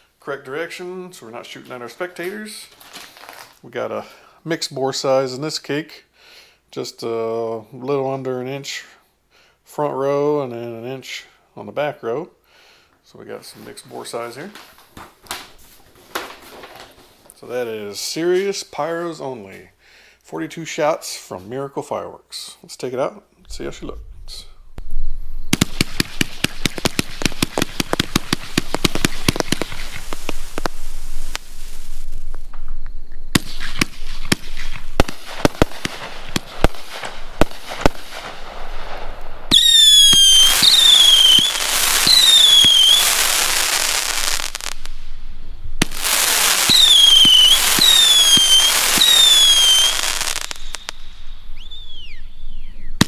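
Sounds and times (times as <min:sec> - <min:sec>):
fireworks crackling: 0:01.4 - 0:03.6, 0:25.5 - 0:53.0
fireworks whistles: 0:24.9 - 0:53.0
fireworks shots: 0:25.5 - 0:32.7, 0:33.3 - 0:53.0
fireworks bangs: 0:25.5 - 0:53.0.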